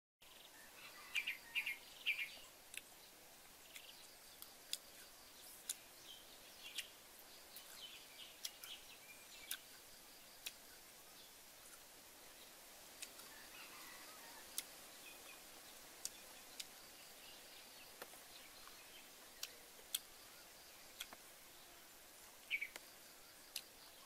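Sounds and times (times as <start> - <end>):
birds chirping: 0.2 - 24.0
faint steady hiss: 0.2 - 24.0.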